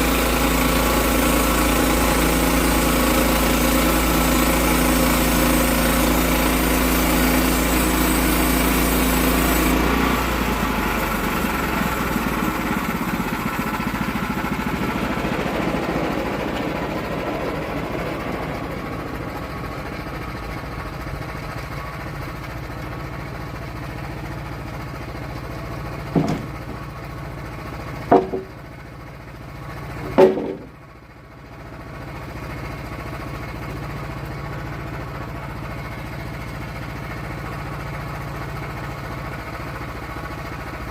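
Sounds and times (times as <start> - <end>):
sawmill engine running: 0.0 - 40.9
sharp knocks: 26.1 - 26.8, 28.1 - 28.6, 30.0 - 30.8.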